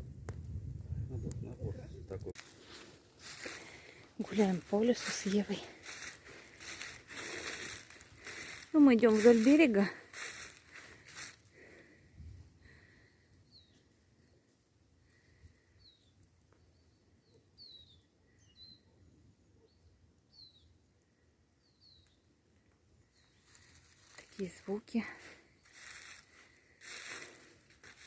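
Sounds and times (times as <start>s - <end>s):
rustling crunches: 2.4s - 11.4s, 23.4s - 28.0s
bird chirping: 15.8s - 20.8s.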